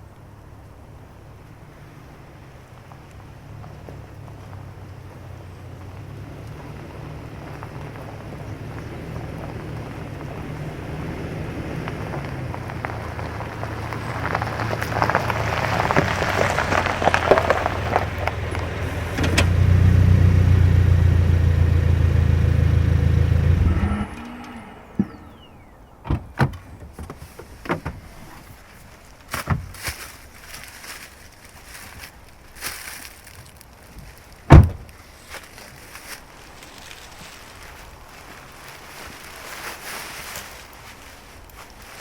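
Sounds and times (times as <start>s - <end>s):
car engine running: 0.3s - 26.0s
engine shutting off falling tone: 12.9s - 26.0s.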